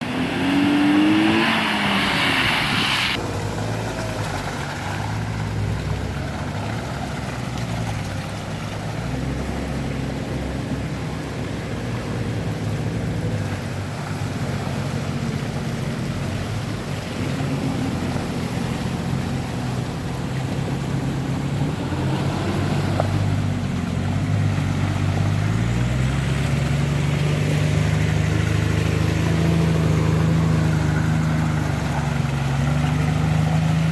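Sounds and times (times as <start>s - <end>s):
off-road vehicle engine revving: 0.0s - 33.9s
hiss: 0.2s - 3.2s.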